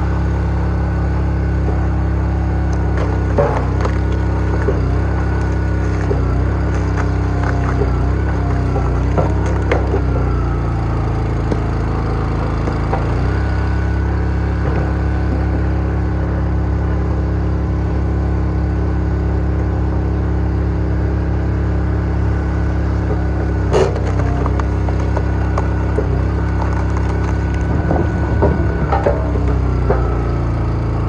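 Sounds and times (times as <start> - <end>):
log splitter engine running: 0.0 - 31.0
log cracking as it splits: 2.6 - 13.8, 23.2 - 30.2.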